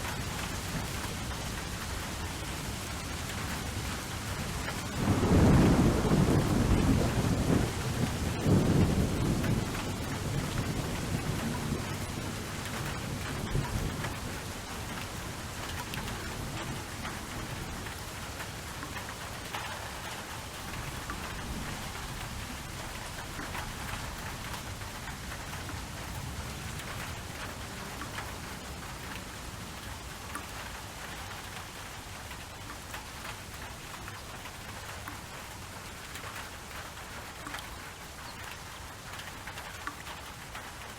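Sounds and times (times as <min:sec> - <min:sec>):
steady rainfall: 0:00.0 - 0:40.9
thunder rumbling: 0:04.9 - 0:15.0.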